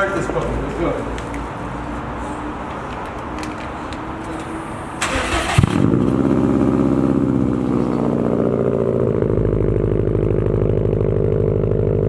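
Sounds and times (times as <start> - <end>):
car engine starting and idling: 0.0 - 12.0
starter motor cranking: 5.0 - 6.1.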